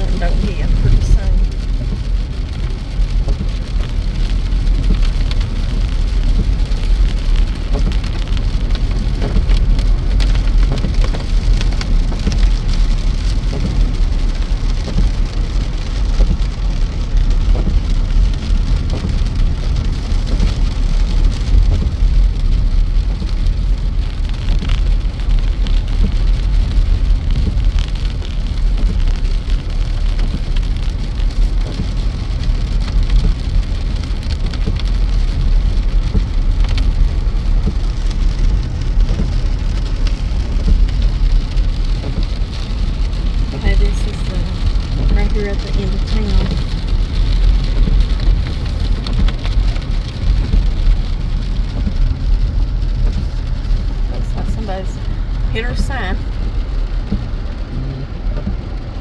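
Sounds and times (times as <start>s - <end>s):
water rushing: 0.0s - 1.6s
deep rumble: 0.0s - 59.0s.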